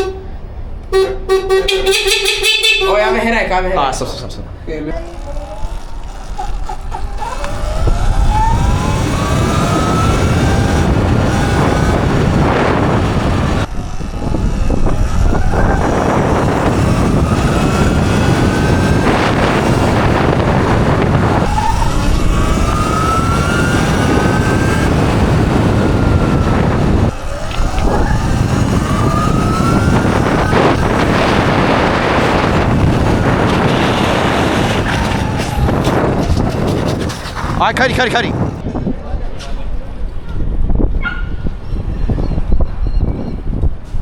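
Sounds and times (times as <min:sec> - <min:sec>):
wind buffeting microphone: 0:03.0 - 0:44.0
electric motor whining: 0:04.7 - 0:38.6.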